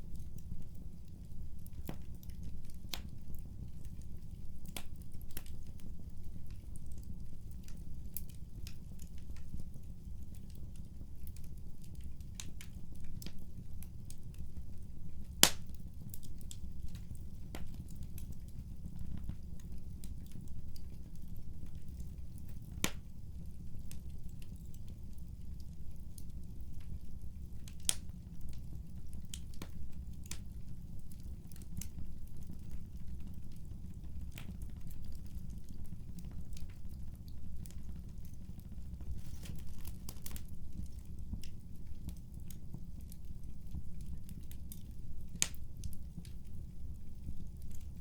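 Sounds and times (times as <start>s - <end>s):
wood fire crackling: 0.0s - 48.0s.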